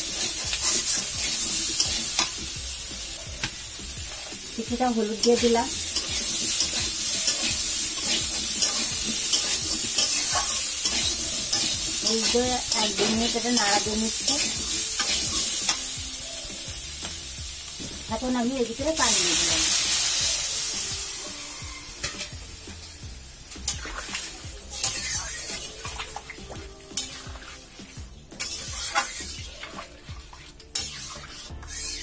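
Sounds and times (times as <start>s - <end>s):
pumpkin sizzling in hot oil: 0.0s - 32.0s
water hissing in hot pan: 0.0s - 32.0s
spatula scraping pan: 5.2s - 15.8s, 23.6s - 32.0s.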